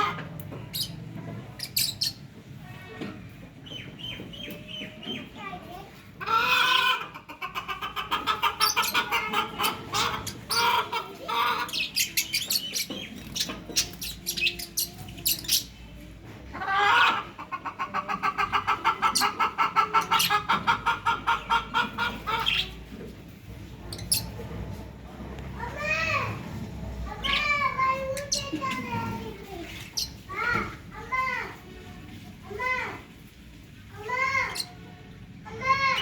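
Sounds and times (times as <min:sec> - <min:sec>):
lovebirds chirping: 0:00.4 - 0:02.3, 0:08.2 - 0:15.9, 0:23.8 - 0:24.4, 0:27.2 - 0:30.3.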